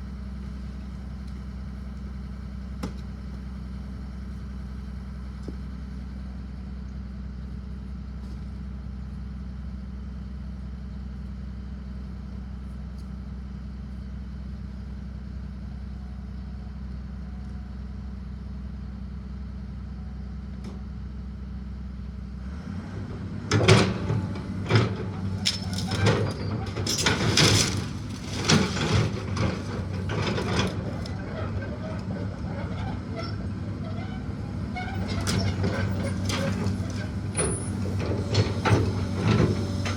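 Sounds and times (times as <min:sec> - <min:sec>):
heavy machine engine: 0:21.7 - 0:39.9
wood cracking and crashing: 0:26.8 - 0:31.0.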